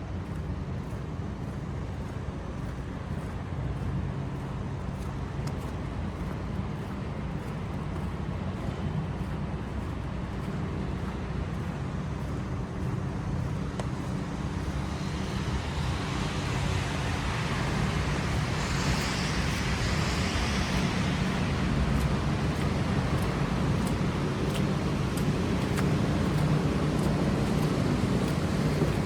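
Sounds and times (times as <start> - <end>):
low rumble of traffic engines: 0.0 - 29.0
car passing with tyre hiss: 14.1 - 29.0.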